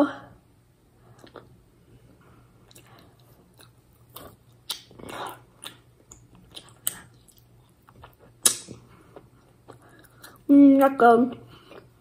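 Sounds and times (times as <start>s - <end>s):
chewing sticky food: 1.1s - 12.0s
mouth clicks and smacks: 2.7s - 10.9s.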